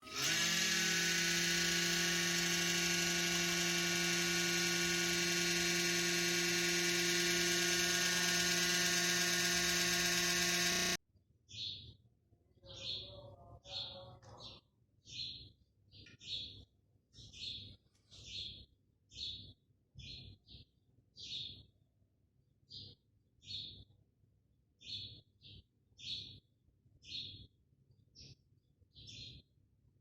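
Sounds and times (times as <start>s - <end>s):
cooling fan whining: 0.0s - 11.0s.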